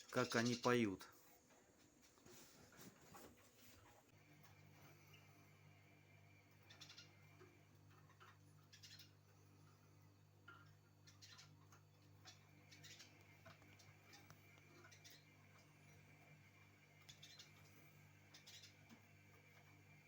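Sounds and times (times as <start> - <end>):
faint songbird chirps: 4.2 - 20.0.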